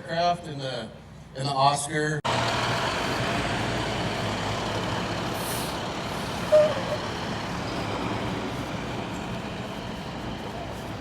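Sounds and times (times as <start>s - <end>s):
vehicle engine running: 2.3s - 11.0s
short squeak: 6.5s - 7.0s.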